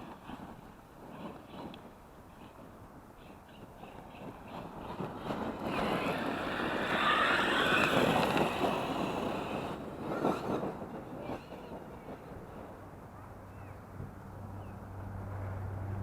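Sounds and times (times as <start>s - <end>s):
tyre noise on dirt: 3.8s - 11.3s
electric motor whine: 5.7s - 9.7s.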